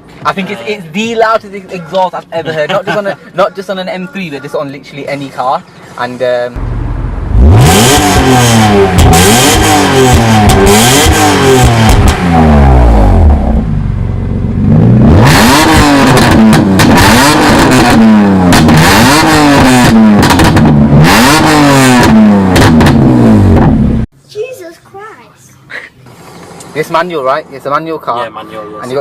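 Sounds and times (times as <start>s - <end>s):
car engine revving loudly: 6.6s - 24.0s.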